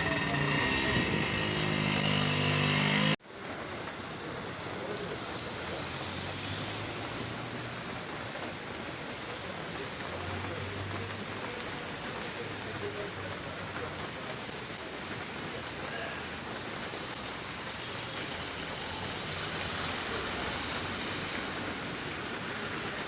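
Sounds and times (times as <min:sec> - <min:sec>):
vehicle engine running: 0:00.0 - 0:03.2
steady rain falling: 0:00.0 - 0:23.0.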